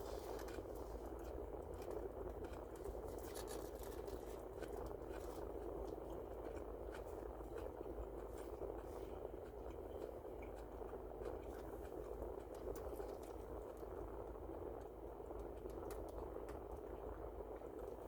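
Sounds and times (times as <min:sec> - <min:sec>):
person chewing food: 0:00.0 - 0:14.0
steady background hum: 0:00.0 - 0:18.0.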